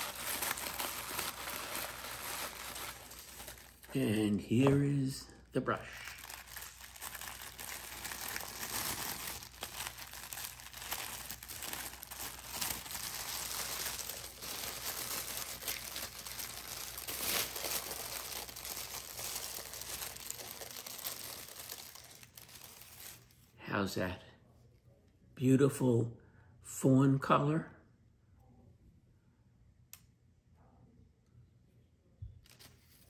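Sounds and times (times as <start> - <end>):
tissue paper crinkling: 0.0 - 23.5.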